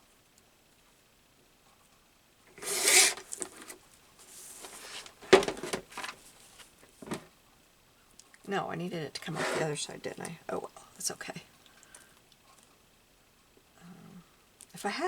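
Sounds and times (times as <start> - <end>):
paper rustling: 2.5 - 7.3, 9.4 - 9.7.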